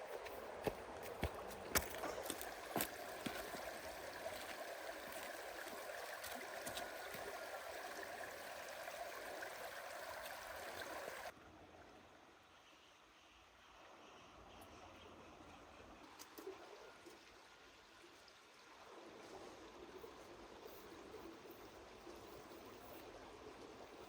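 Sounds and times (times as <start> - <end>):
running water: 0.0 - 11.8.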